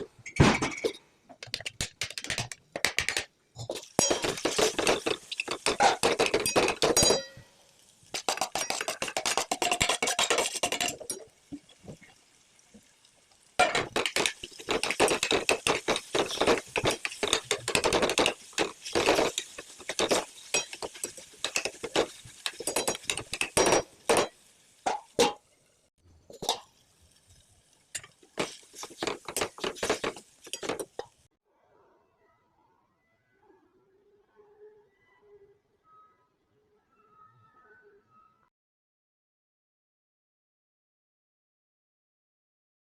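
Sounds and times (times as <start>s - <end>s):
spoon scraping cookware: 8.2s - 11.3s, 13.6s - 24.3s, 28.0s - 31.1s.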